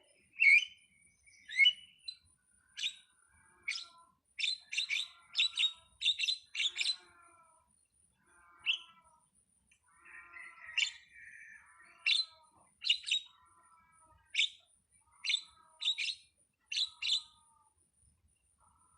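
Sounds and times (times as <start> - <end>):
starling chirping and chattering: 2.8 - 7.2, 8.4 - 9.1, 10.0 - 17.6.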